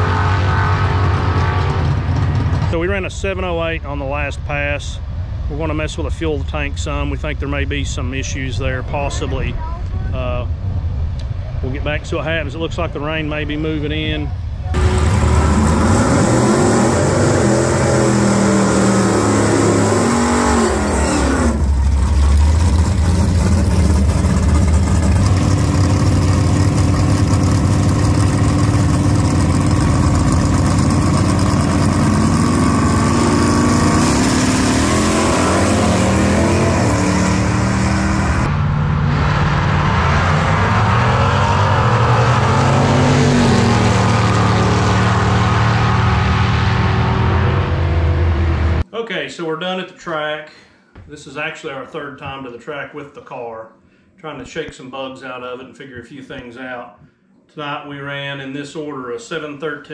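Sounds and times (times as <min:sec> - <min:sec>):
drag car engines revving: 0:00.0 - 0:03.5, 0:14.7 - 0:48.8.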